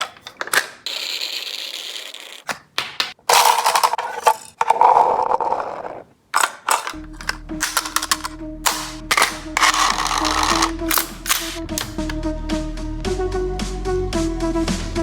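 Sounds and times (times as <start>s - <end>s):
toy gun clicks and rattles: 3.3s - 5.0s, 6.4s - 12.2s.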